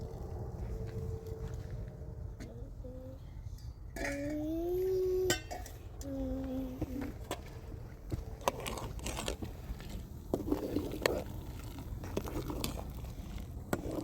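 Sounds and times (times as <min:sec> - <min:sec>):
rustling or crunching: 0:08.0 - 0:14.0.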